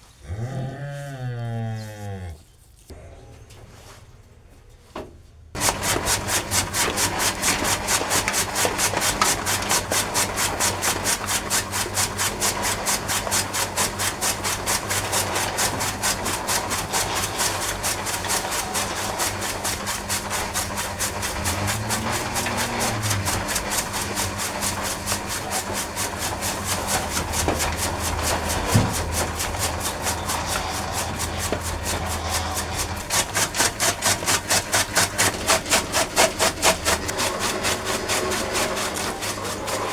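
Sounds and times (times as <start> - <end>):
steady motor hum: 5.5 - 39.9
chaff cutter chopping grass: 5.6 - 39.9.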